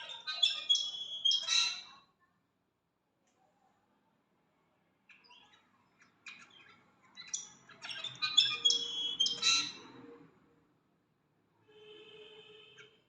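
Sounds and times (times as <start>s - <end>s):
bird calling with whistles: 0.0s - 1.9s, 7.2s - 9.8s.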